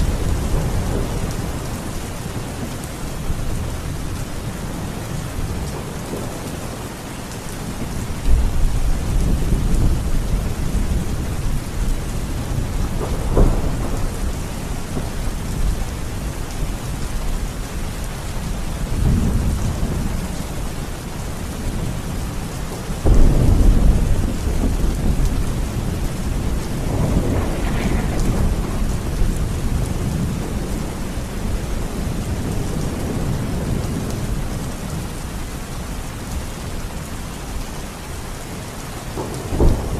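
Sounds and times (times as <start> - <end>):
rolling thunder: 0.0 - 6.8, 7.7 - 17.7, 21.4 - 35.1, 39.2 - 39.9
steady rain: 0.0 - 39.9.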